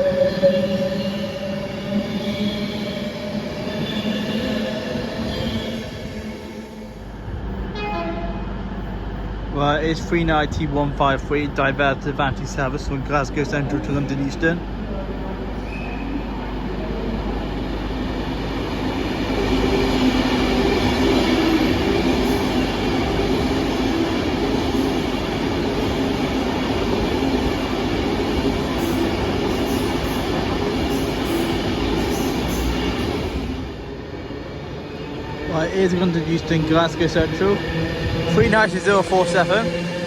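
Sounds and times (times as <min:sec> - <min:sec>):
electric train passing: 0:16.2 - 0:40.0.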